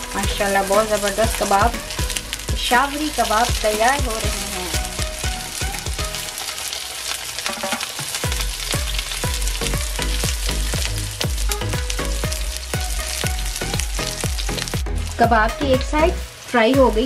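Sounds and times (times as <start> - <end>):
background music with steady beat: 0.0 - 6.4, 7.6 - 17.0
spatula turning food in pan: 0.0 - 15.2
meat sizzling in oil: 0.0 - 17.0.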